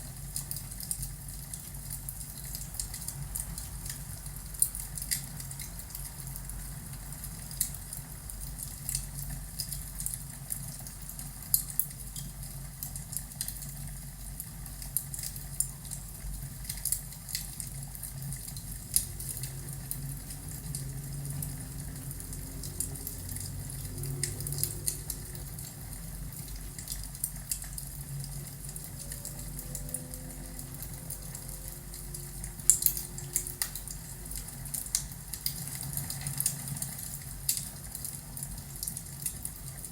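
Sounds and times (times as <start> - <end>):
fireplace crackling: 14.7 - 39.9
low rumble: 18.7 - 35.3.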